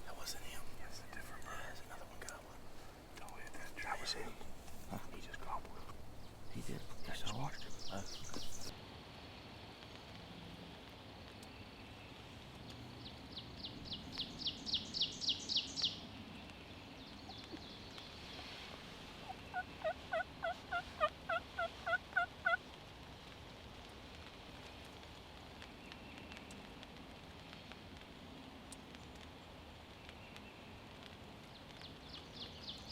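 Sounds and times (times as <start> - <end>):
turkey yelping: 19.2 - 22.6.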